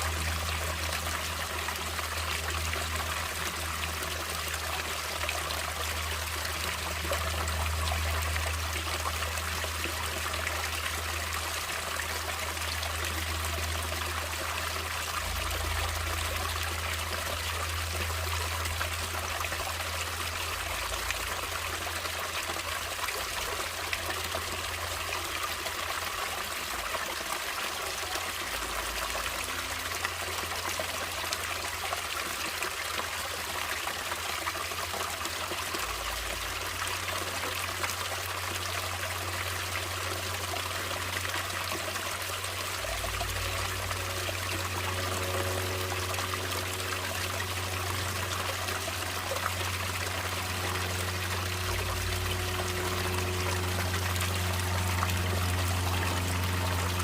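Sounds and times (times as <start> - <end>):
stream water trickling: 0.0 - 57.0
low rumble: 42.6 - 57.0.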